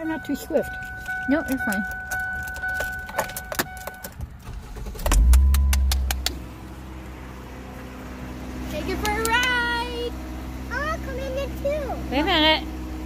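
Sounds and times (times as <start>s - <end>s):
car engine cranking and idling: 0.0s - 13.0s
keys jangling in ignition: 0.1s - 5.8s.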